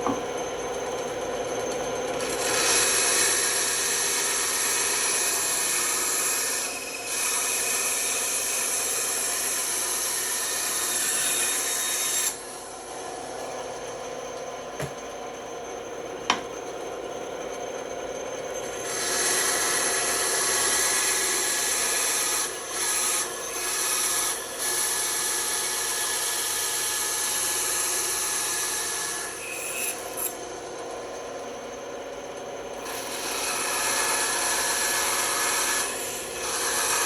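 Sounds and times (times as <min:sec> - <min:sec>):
band saw cutting wood: 0:01.3 - 0:13.9, 0:18.5 - 0:30.4, 0:32.8 - 0:37.0.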